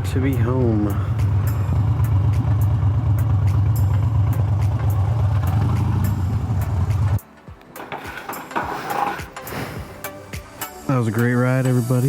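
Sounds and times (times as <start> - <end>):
motorcycle engine rumbling: 0.0 - 7.2.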